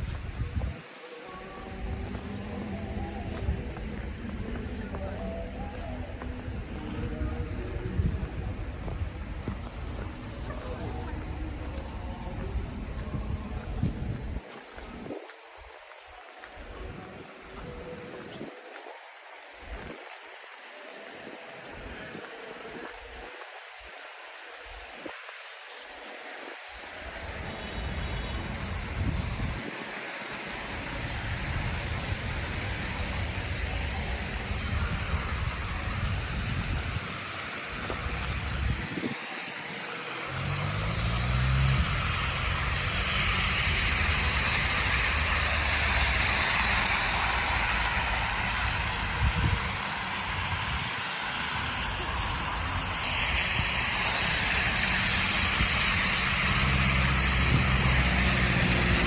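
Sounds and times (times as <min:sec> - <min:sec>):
city street traffic: 0:00.0 - 0:15.0, 0:26.1 - 0:59.0
wind buffeting microphone: 0:00.0 - 0:18.7, 0:26.9 - 0:59.0
hiss of passing traffic: 0:00.0 - 0:59.0
vehicle engine speeding up: 0:40.2 - 0:49.8, 0:51.8 - 0:59.0.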